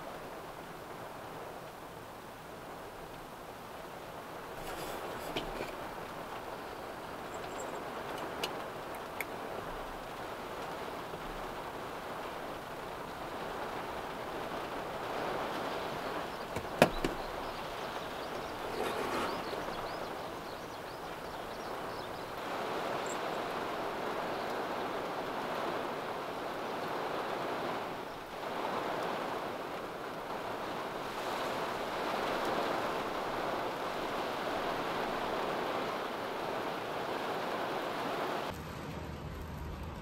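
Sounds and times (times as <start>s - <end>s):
heavy rain: 0.0s - 40.0s
low hum: 38.5s - 40.0s.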